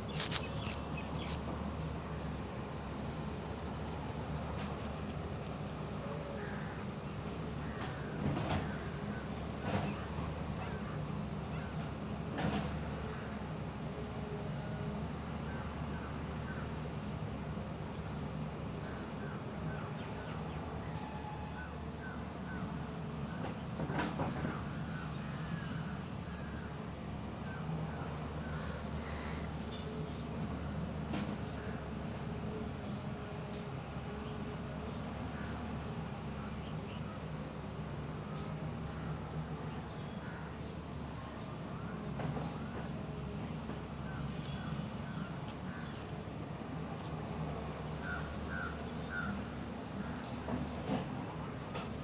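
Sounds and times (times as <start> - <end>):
low background noise: 0.0 - 52.0
crows cawing: 6.2 - 6.8, 28.5 - 29.6, 48.0 - 49.4.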